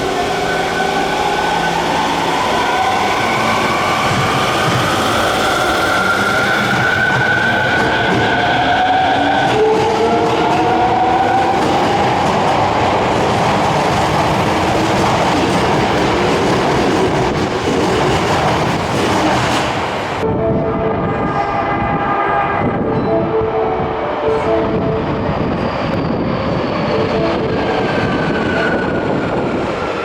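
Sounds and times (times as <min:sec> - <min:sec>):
train wheels on rails: 0:00.0 - 0:20.2.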